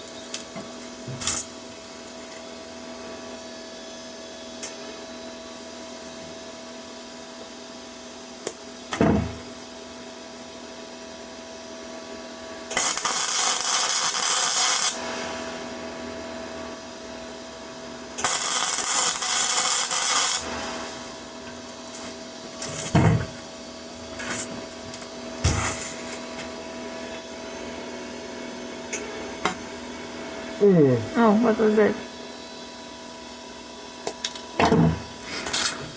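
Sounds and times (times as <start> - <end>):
arc welding crackle: 0.0 - 2.4, 12.6 - 15.6, 17.8 - 26.6
welder humming: 0.0 - 3.1, 12.6 - 32.1.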